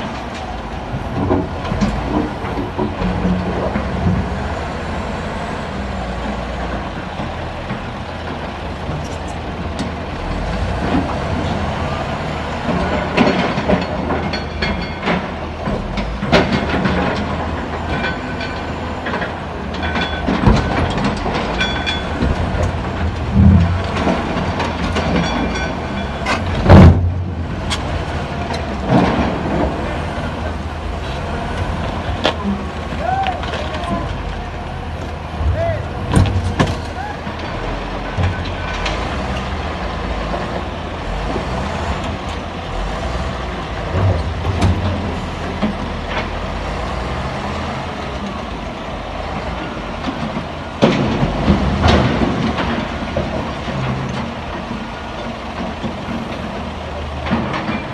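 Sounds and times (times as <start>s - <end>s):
heavy machinery engine: 0.0s - 57.9s
metallic clanks and knocks: 12.6s - 41.4s, 43.8s - 46.7s, 49.3s - 57.9s.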